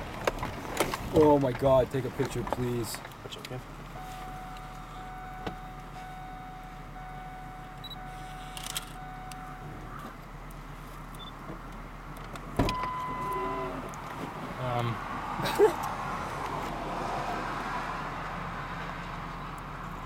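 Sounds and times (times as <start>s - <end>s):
car engine idling: 0.0s - 16.0s
faint steady whine: 3.0s - 14.0s.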